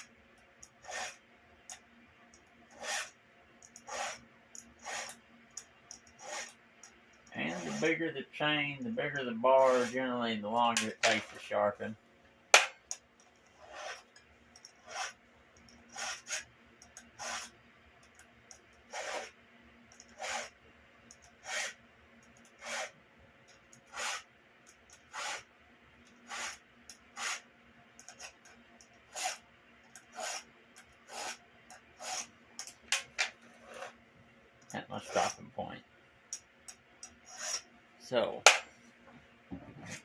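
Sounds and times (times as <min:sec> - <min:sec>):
file rasping on saw chain: 0:00.7 - 0:01.2, 0:02.7 - 0:03.2, 0:03.8 - 0:05.2, 0:06.1 - 0:06.6, 0:07.3 - 0:08.0, 0:09.5 - 0:10.1, 0:13.5 - 0:15.2, 0:15.8 - 0:16.5, 0:17.2 - 0:17.5, 0:18.9 - 0:19.3, 0:20.0 - 0:20.6, 0:21.3 - 0:21.8, 0:22.5 - 0:23.0, 0:23.8 - 0:24.3, 0:25.0 - 0:25.5, 0:26.2 - 0:26.6, 0:27.2 - 0:27.4, 0:28.1 - 0:28.4, 0:29.1 - 0:29.4, 0:30.0 - 0:31.4, 0:32.0 - 0:32.3, 0:35.0 - 0:35.4, 0:37.2 - 0:37.6.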